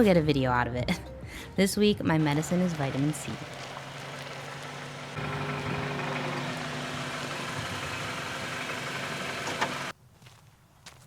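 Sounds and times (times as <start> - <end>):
car engine running: 2.2 - 9.9.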